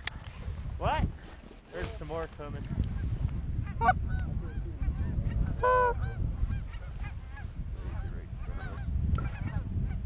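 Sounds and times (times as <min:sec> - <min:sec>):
geese honking: 0:03.6 - 0:10.0.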